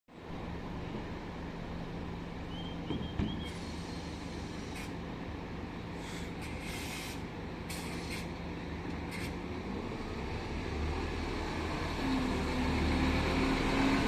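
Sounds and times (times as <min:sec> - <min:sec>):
bus engine idling: 0:00.2 - 0:14.0
compressed air hisses: 0:03.5 - 0:05.0, 0:06.0 - 0:08.3.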